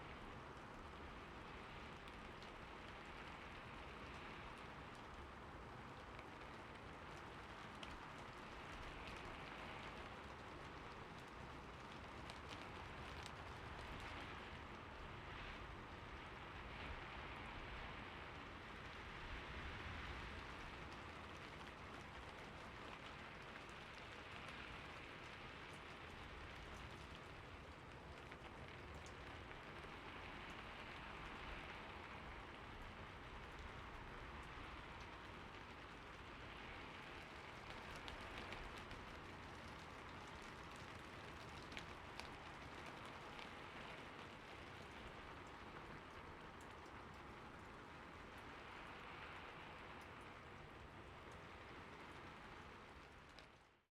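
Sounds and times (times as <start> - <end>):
soft rain falling: 0.0 - 53.9
raindrop ticks: 0.1 - 53.8.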